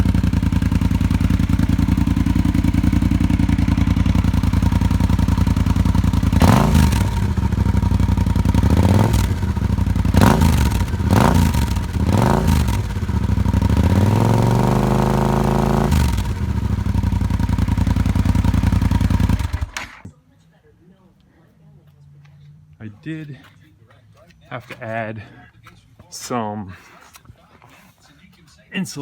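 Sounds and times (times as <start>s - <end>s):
motorcycle engine idling and revving: 0.0s - 20.1s.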